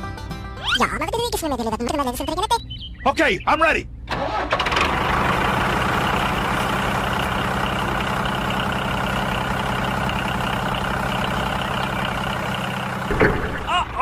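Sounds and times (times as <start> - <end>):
engine idling: 4.1 - 14.0.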